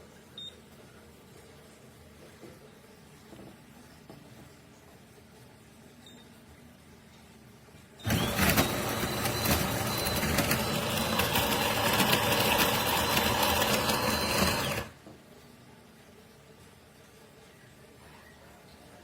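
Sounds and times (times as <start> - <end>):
coffee grinder grinding beans: 8.0 - 15.0.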